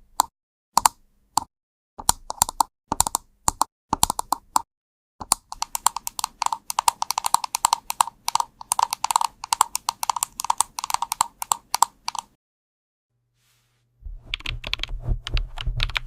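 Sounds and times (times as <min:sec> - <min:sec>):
mechanical keyboard typing: 0:02.0 - 0:04.6, 0:05.2 - 0:12.4, 0:14.3 - 0:16.0.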